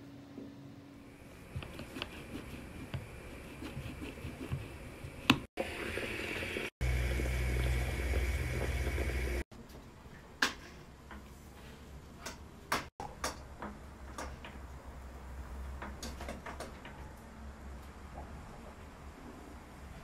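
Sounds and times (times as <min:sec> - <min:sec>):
small appliance humming and whining: 0:04.4 - 0:09.4
kitchen taps and clicks: 0:12.2 - 0:14.6.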